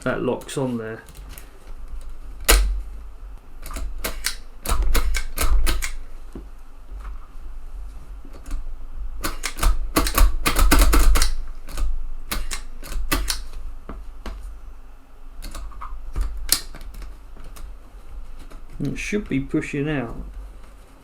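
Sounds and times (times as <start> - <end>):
floppy drive mechanism clicking: 0.0 - 2.9, 3.6 - 6.1, 8.3 - 13.6, 15.4 - 17.8.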